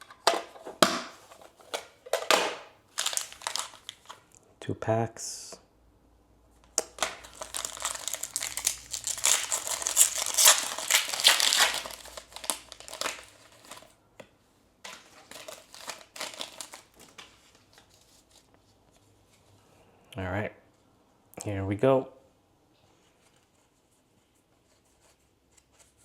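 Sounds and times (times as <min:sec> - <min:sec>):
foil wrapper crinkling and tearing: 0:02.9 - 0:04.4, 0:06.9 - 0:14.0, 0:14.9 - 0:18.1.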